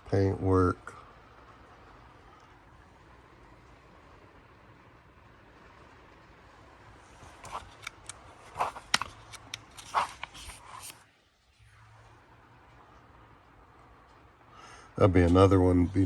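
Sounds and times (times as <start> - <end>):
faint room noise: 0.0 - 16.0
magazine pages rustling: 7.1 - 11.0.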